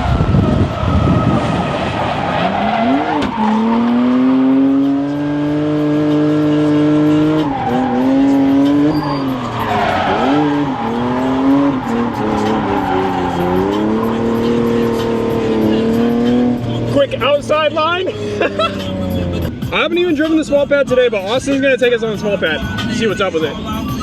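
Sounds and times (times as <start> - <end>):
car engine at high revs: 0.0 - 20.7
tyres squealing: 0.8 - 5.0, 6.0 - 19.8.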